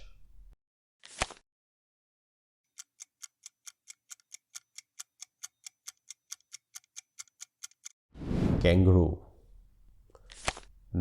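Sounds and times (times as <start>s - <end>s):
quick clock ticking: 2.8s - 7.9s.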